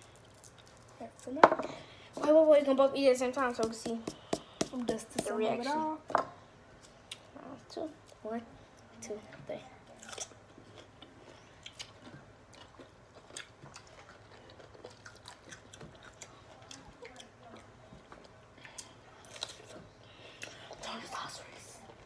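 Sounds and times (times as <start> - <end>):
wet chewing with mouth clicks: 10.0 - 20.8.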